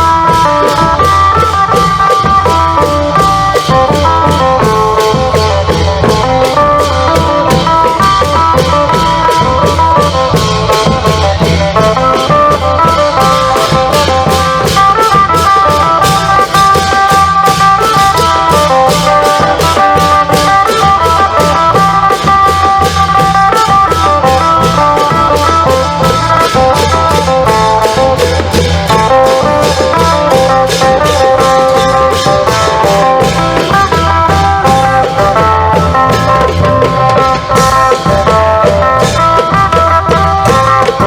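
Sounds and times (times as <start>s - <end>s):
fast repeating percussion strokes: 0.0s - 41.0s
long drum beat: 0.0s - 41.0s.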